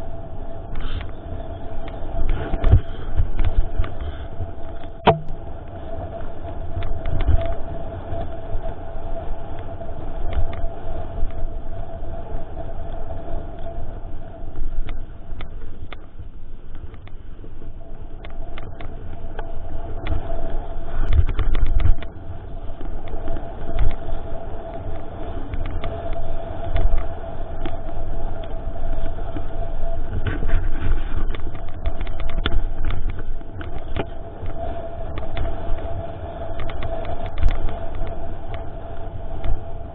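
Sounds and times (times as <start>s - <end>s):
wind and ground rumble: 0.0s - 39.9s
steady buzz: 5.0s - 5.4s.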